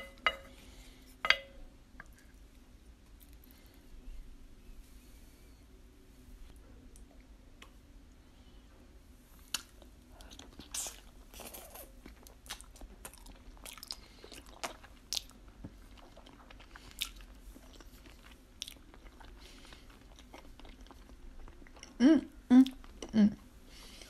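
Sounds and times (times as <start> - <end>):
wet chewing: 12.1 - 22.0.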